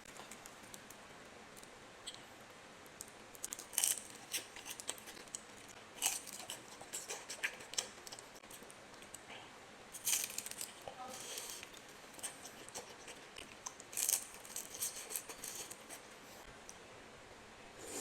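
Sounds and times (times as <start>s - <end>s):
crunching of crisp food: 3.0s - 9.2s, 10.0s - 16.3s.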